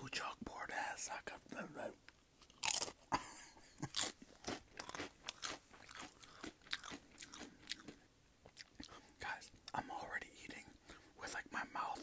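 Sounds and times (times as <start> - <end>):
chewing crunchy food: 2.1 - 9.9.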